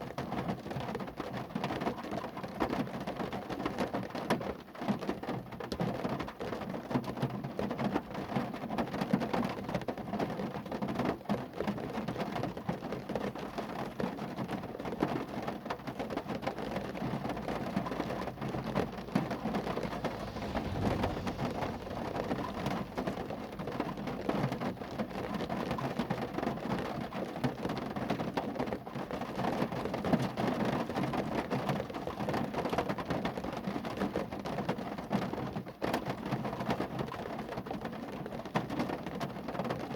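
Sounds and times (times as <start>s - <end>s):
rain pattering on a car: 0.0s - 39.9s.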